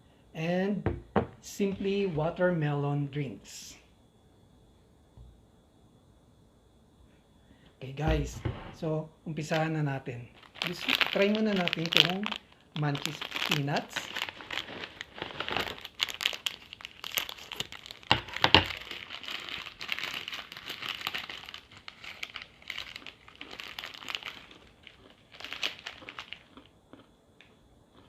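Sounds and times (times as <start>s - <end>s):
plastic snack bag crinkling: 9.4s - 28.0s.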